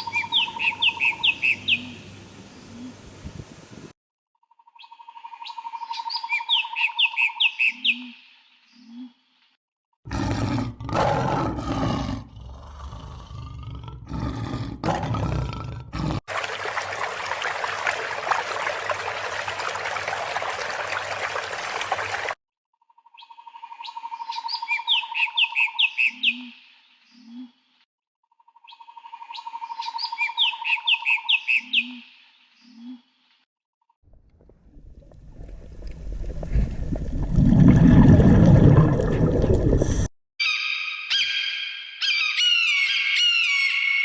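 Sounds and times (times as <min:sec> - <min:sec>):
steady hiss: 0:01.9 - 0:03.9
large animal roaring: 0:10.1 - 0:16.2.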